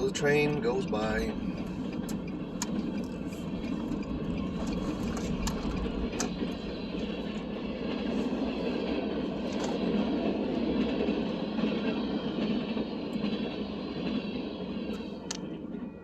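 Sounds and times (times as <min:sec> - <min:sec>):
sharp clicks of train wheels: 0:00.0 - 0:15.9
train cars rumbling past: 0:00.0 - 0:16.0.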